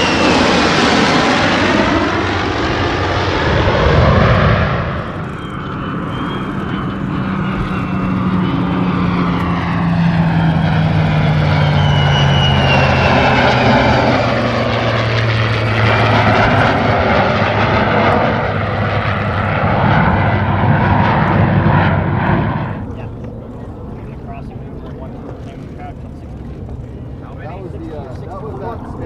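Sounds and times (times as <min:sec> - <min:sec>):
jet flying past: 0:00.0 - 0:29.0.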